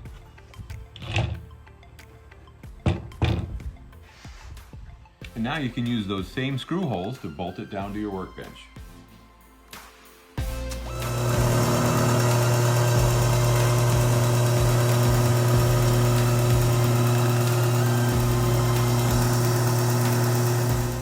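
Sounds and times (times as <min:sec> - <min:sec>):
belt sander motor humming: 0:10.8 - 0:21.0
sanding belt hissing: 0:11.0 - 0:21.0.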